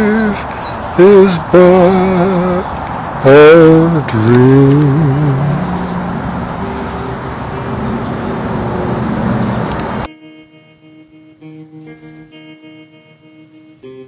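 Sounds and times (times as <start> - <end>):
acoustic guitar music: 0.0 - 14.0
loud rushing noise: 1.6 - 10.1.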